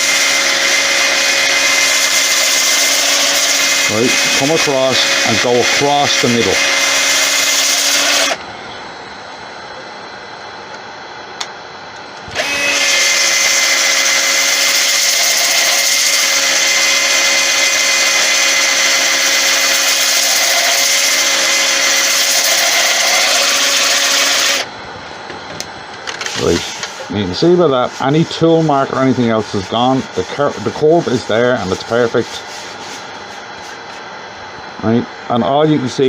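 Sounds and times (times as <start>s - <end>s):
power drill sanding wood: 0.0s - 8.4s, 12.4s - 24.7s, 26.3s - 33.0s.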